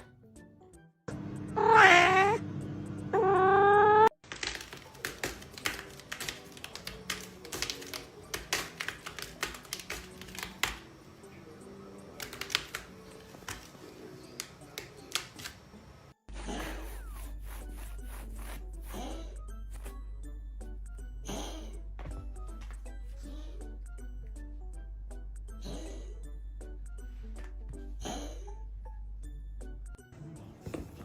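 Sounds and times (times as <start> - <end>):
background music: 0.0 - 31.0
cat meowing: 1.6 - 2.4, 3.1 - 4.2.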